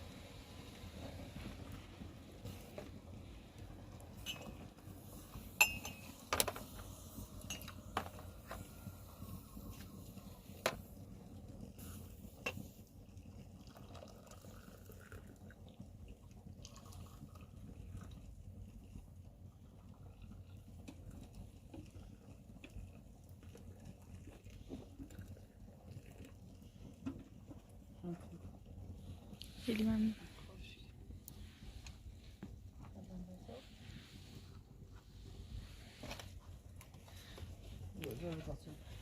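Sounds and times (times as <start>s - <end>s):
kitchenware clinking: 5.6s - 6.3s.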